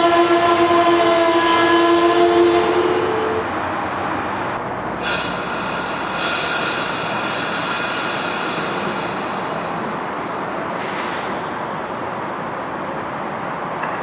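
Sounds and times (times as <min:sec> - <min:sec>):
high-pitched wheel squeal: 0:00.0 - 0:03.5, 0:12.4 - 0:12.9
train rumbling: 0:00.0 - 0:14.0.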